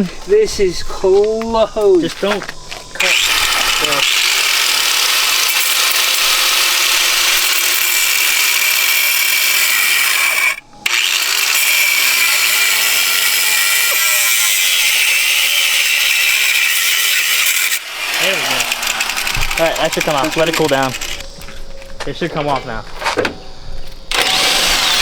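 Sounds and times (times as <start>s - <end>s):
angle grinder cutting metal: 3.0s - 21.3s, 24.1s - 25.0s.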